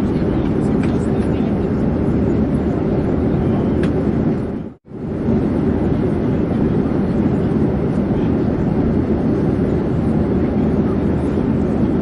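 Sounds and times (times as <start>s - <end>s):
airplane drone: 0.0s - 12.0s.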